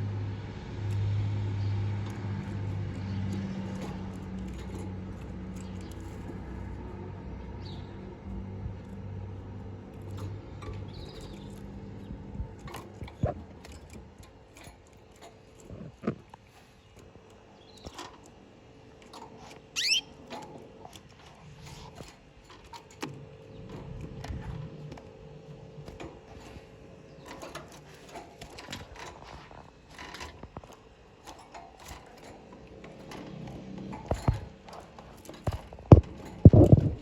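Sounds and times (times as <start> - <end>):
steady low hum: 0.0 - 37.0
canaries chirping: 10.7 - 12.2, 19.4 - 20.2.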